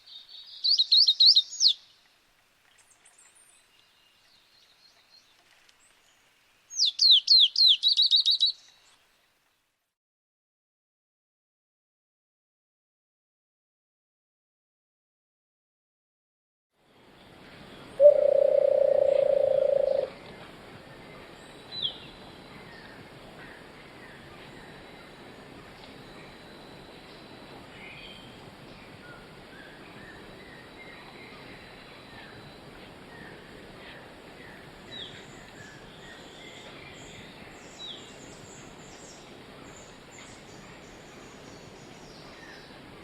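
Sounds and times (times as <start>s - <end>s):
bird chirp: 0.0s - 2.0s, 2.8s - 9.1s, 17.7s - 20.1s
steady background noise: 16.8s - 43.0s.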